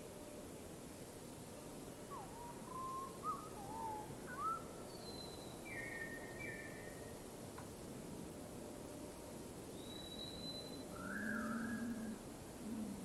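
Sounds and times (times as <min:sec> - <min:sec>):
steady hiss: 0:00.0 - 0:13.0
bird whistling: 0:02.7 - 0:06.6, 0:09.8 - 0:11.8.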